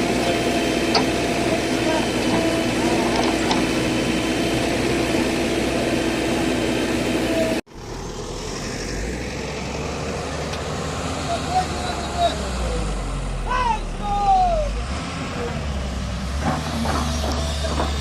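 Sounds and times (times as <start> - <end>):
background voices: 0.0 - 7.3
diesel engine running: 0.0 - 18.0.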